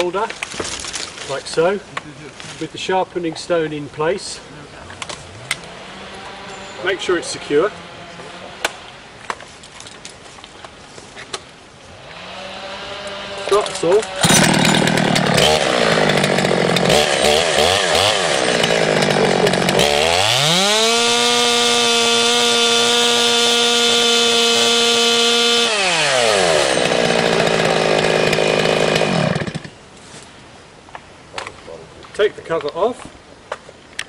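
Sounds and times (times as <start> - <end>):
chainsaw idling and revving: 5.3 - 7.7, 12.0 - 29.8.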